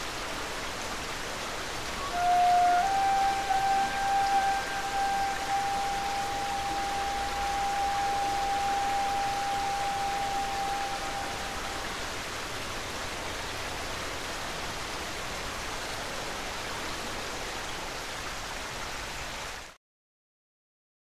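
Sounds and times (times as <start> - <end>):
river rushing through tunnel: 0.0 - 19.8
reed flute held note: 1.9 - 12.2.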